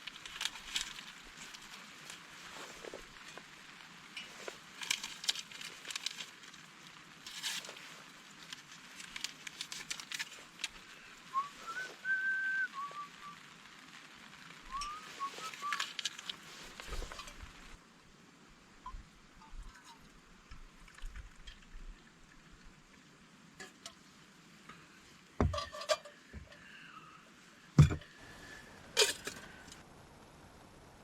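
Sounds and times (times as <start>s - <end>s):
sharp clicks and crackles: 0.0s - 11.8s, 13.4s - 17.8s
whistled notes: 11.3s - 13.4s, 14.7s - 15.9s.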